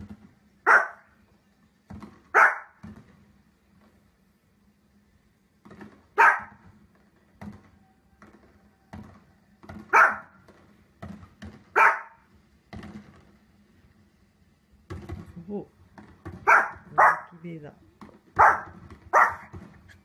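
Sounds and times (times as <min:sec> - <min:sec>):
dog barking: 0:00.6 - 0:01.1, 0:02.3 - 0:02.8, 0:06.2 - 0:06.6, 0:09.9 - 0:10.4, 0:11.7 - 0:12.2, 0:16.4 - 0:17.4, 0:18.4 - 0:19.5.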